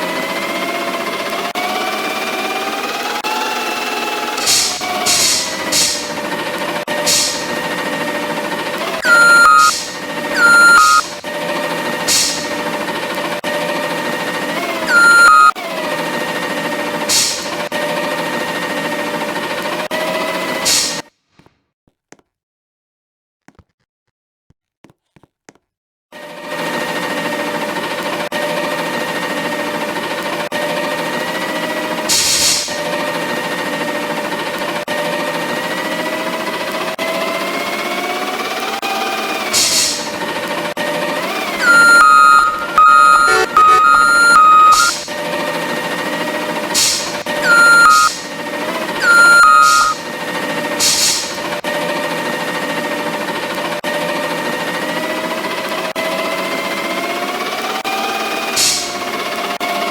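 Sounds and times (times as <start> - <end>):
garbage truck machinery whine: 0.0 - 20.4, 26.2 - 59.8
air hiss: 7.1 - 7.5, 12.1 - 12.5, 17.1 - 17.5, 50.8 - 51.4
short hisses: 12.1 - 12.5
short descending tone: 14.9 - 15.5, 41.6 - 45.0, 47.4 - 48.1, 49.0 - 50.0.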